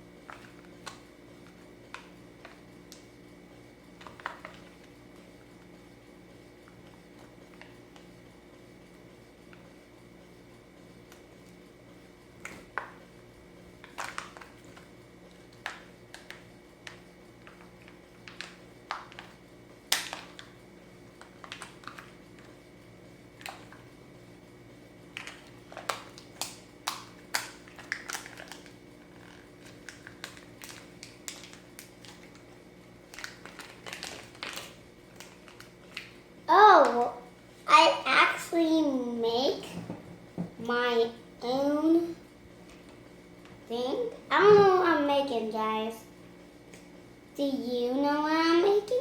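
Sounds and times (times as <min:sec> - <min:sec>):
faint steady hum: 0:00.0 - 0:49.0.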